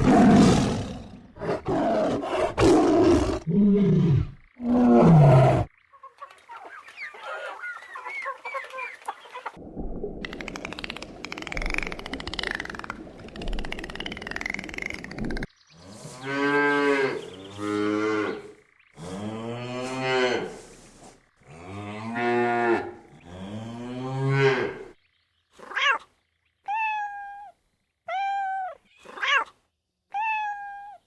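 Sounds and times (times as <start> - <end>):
cat meowing: 28.1 - 29.5, 30.1 - 31.0.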